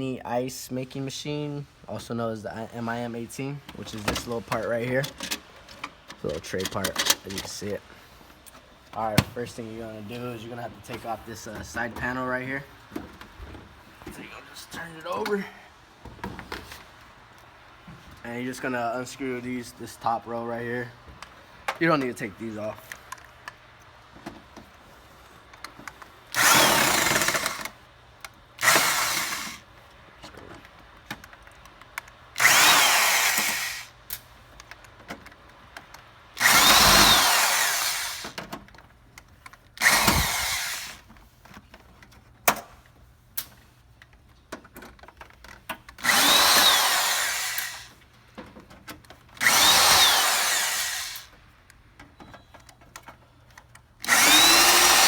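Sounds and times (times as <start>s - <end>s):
power drill unscrewing screws: 3.8s - 7.8s, 25.5s - 27.8s, 28.6s - 29.7s, 32.0s - 34.2s, 36.4s - 41.1s, 45.2s - 48.0s, 48.9s - 51.5s, 52.2s - 55.0s.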